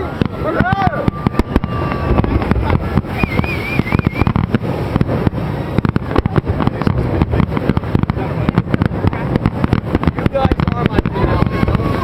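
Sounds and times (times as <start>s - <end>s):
warbling firework whistle: 0.0s - 6.4s, 10.8s - 12.0s
fireworks bangs: 0.0s - 12.0s.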